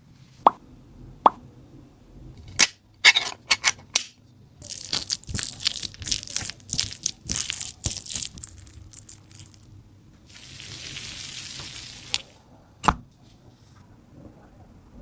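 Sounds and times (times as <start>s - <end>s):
crisp material crunching: 4.6s - 9.8s.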